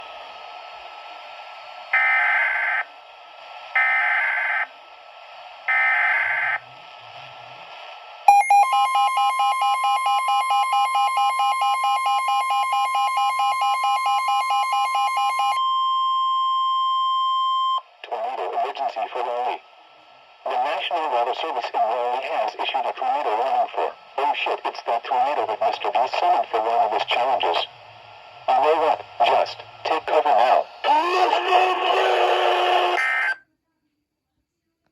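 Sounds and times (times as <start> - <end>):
data tone bursts: 8.3 - 17.8
steady warning tone: 8.3 - 17.9
radio hiss: 18.0 - 33.0.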